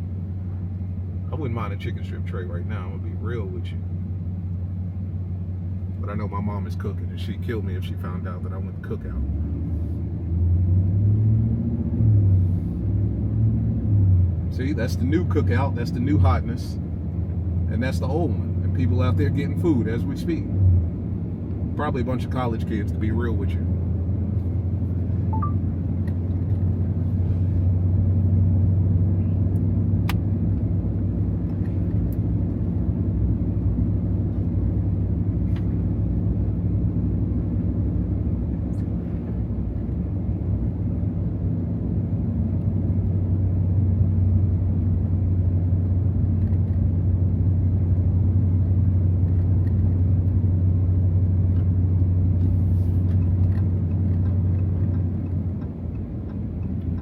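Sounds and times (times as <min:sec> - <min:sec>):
truck engine drone from inside cab: 0:00.0 - 0:57.0.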